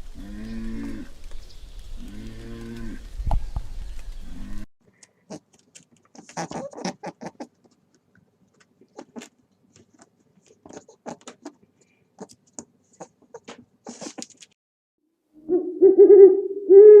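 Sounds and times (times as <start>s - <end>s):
small animal scratching and clicking: 5.0s - 14.6s.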